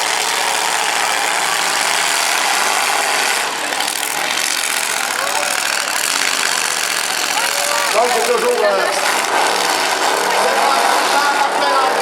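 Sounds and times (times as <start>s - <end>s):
car engines running loudly: 0.0s - 12.0s.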